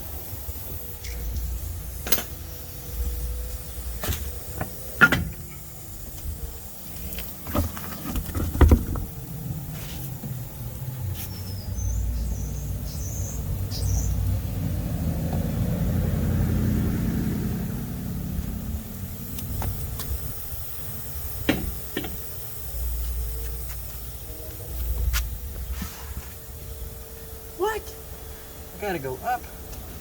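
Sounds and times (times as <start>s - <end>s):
vehicle passing by: 9.4s - 19.6s.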